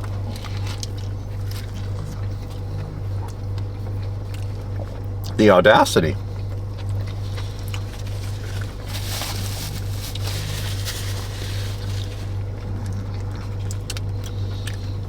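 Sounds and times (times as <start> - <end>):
faint rustles and clicks: 6.9 - 13.4.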